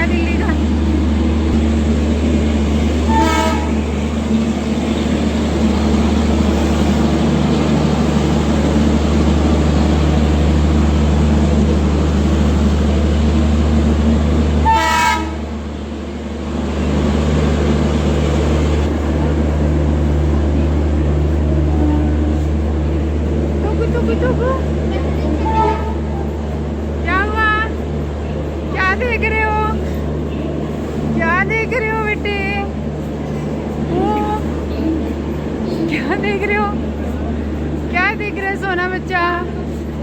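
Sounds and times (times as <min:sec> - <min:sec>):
train running drone: 0:00.0 - 0:40.0
train horn toots: 0:03.0 - 0:03.9, 0:14.6 - 0:15.6, 0:25.4 - 0:26.2.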